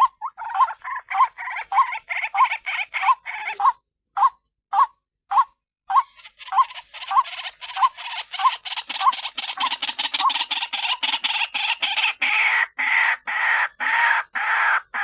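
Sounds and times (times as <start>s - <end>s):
waterhen calling: 0.0s - 4.3s.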